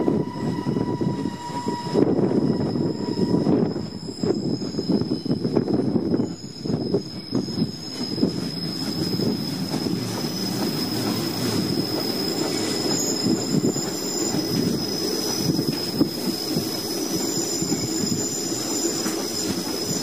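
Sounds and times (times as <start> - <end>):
train wheels squealing: 0.0 - 20.0
wheels clattering on rails: 4.2 - 20.0.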